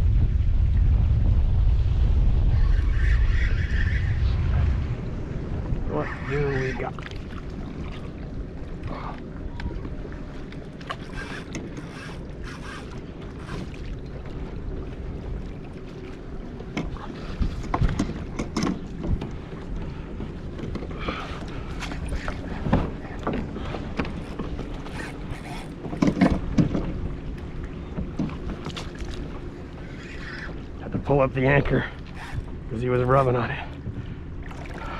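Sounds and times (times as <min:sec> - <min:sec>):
wind on microphone: 0:00.0 - 0:32.8
water around kayak: 0:00.0 - 0:34.9
gear knocks and clicks: 0:21.8 - 0:27.0.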